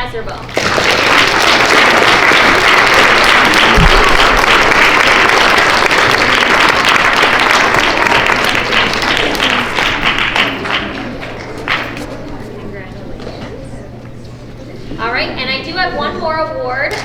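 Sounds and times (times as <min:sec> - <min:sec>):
audience applauding: 0:00.5 - 0:12.2.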